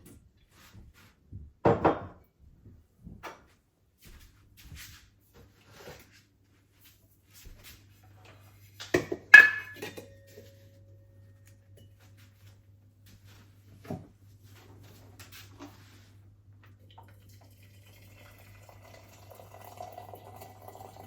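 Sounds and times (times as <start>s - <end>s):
crockery clinking: 9.0s - 10.6s.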